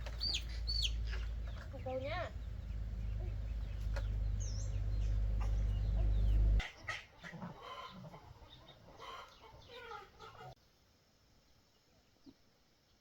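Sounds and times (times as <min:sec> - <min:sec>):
chickens clucking: 0:00.0 - 0:10.6
loud low rumble: 0:00.1 - 0:06.6.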